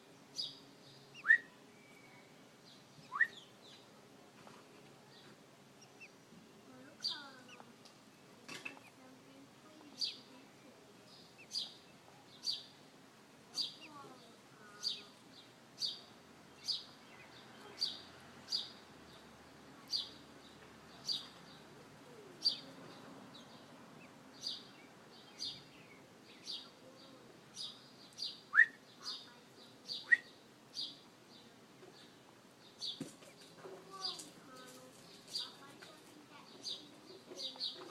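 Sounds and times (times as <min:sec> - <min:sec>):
small bird chirping: 0:00.3 - 0:03.9, 0:05.0 - 0:12.8, 0:13.5 - 0:37.9.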